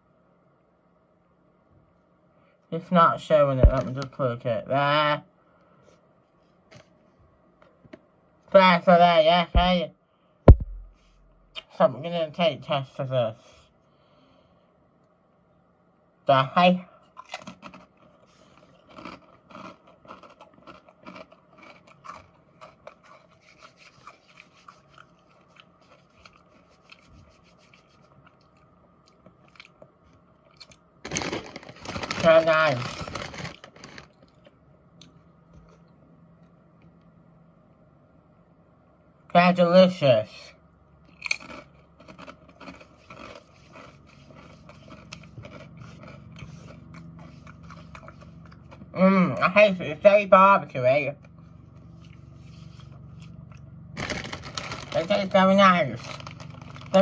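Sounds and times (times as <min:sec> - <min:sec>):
chewing crisps: 0:17.0 - 0:35.9, 0:41.0 - 0:48.9, 0:51.2 - 0:57.0
rustling noise: 0:23.2 - 0:28.2.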